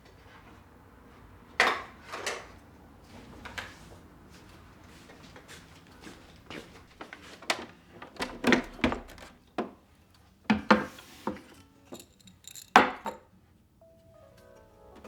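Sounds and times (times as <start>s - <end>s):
objects knocking and clattering: 7.1s - 9.8s
soft music with held notes: 11.3s - 12.4s, 13.4s - 15.0s.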